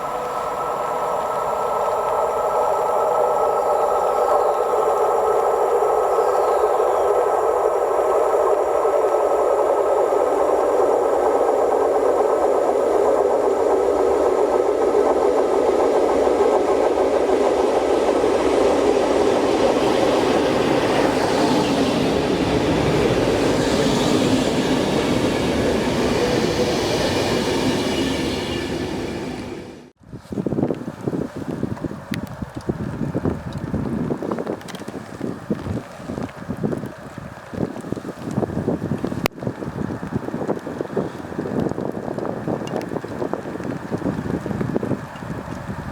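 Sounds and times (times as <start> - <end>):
electric train passing: 0.0 - 30.0.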